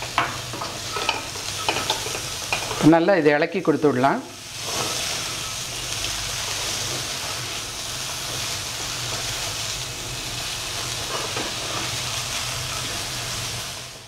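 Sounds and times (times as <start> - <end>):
spatula stirring food: 0.0 - 2.8
food sizzling in a pan: 0.0 - 14.0.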